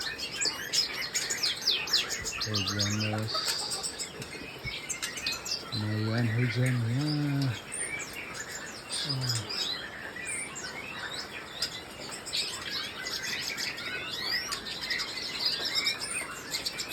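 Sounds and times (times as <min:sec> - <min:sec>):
songbirds chirping: 0:00.0 - 0:16.9
low voice-like hum: 0:02.4 - 0:03.3, 0:05.7 - 0:07.6, 0:09.0 - 0:09.5.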